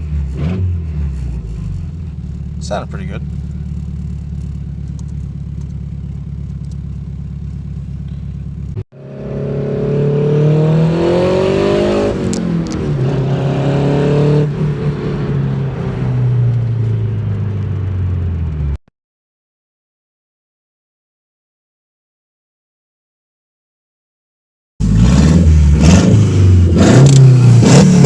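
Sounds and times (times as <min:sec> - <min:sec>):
car engine revving: 0:00.0 - 0:18.8, 0:24.8 - 0:28.0.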